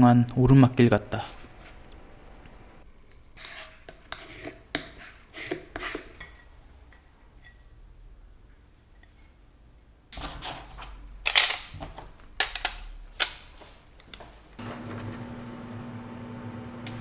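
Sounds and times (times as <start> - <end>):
low electric hum: 0.0 - 3.3
glass pieces clicking and knocking: 10.2 - 13.4.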